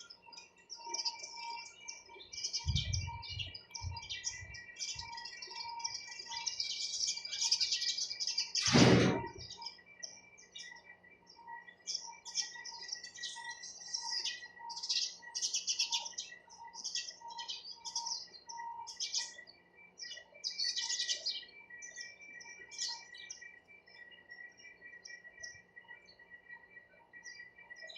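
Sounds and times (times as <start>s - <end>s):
sparrows chirping: 0.0s - 27.9s
loud thump: 8.6s - 9.4s.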